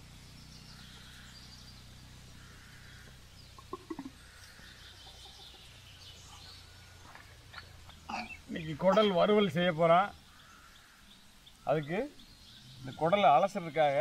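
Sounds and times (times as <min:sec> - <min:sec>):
steady low hum: 0:00.0 - 0:13.9
birds calling: 0:00.0 - 0:14.0
low cluck-like calls: 0:02.4 - 0:09.2.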